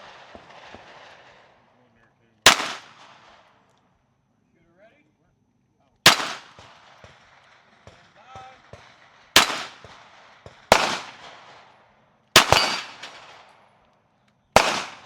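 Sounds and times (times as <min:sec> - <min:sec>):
pistol shots echoing: 0:02.4 - 0:03.6, 0:06.0 - 0:13.8, 0:14.6 - 0:15.0.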